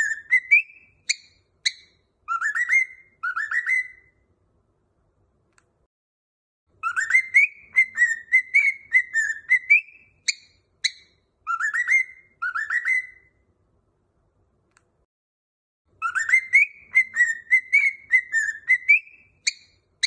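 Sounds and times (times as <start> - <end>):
cockatiel whistling: 0.0 - 4.2, 6.8 - 13.4, 16.0 - 19.8.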